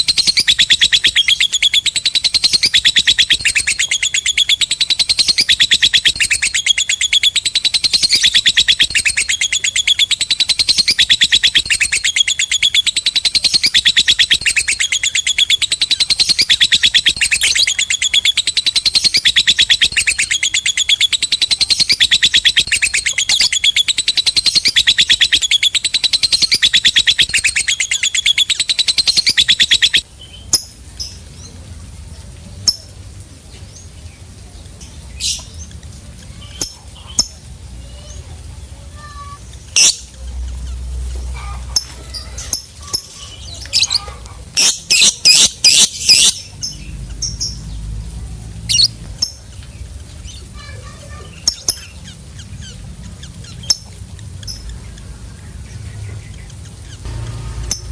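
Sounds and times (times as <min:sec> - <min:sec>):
lovebird chattering: 0:00.0 - 0:31.2, 0:36.2 - 0:47.9, 0:48.6 - 0:57.9
faint bird chirps: 0:00.0 - 0:31.6.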